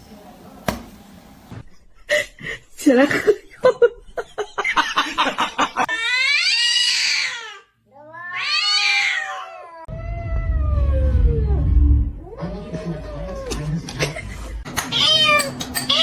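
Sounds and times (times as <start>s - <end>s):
cat meowing: 6.0s - 10.4s
low rumbling noise: 9.9s - 13.0s.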